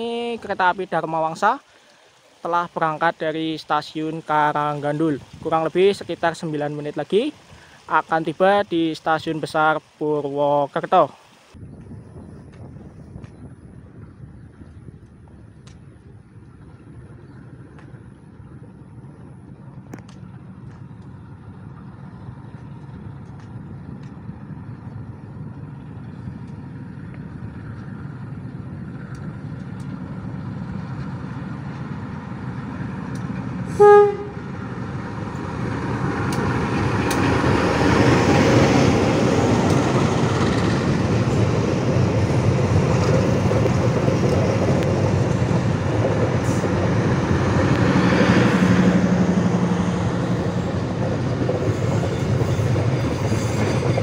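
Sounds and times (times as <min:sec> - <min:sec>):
diesel train rumbling past: 0:00.0 - 0:54.0
train horn blast: 0:33.7 - 0:34.7.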